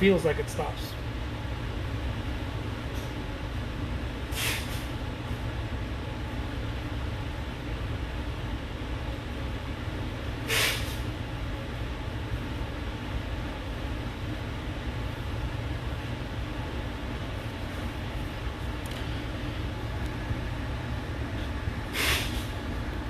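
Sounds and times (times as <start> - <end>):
low background hum: 0.0 - 23.0
short hissing swishes: 4.3 - 4.9, 10.5 - 11.1, 21.9 - 22.6.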